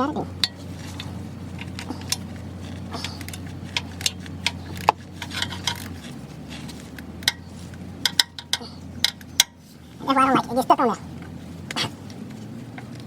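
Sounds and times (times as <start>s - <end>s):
steady low hum: 0.0s - 13.0s
metallic clicks of hand tools: 0.4s - 9.6s.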